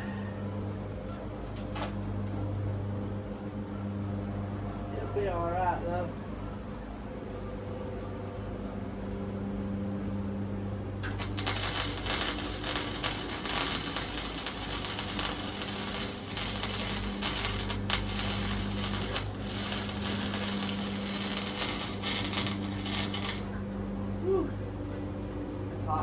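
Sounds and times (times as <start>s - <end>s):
welding arc crackling: 11.0s - 23.7s.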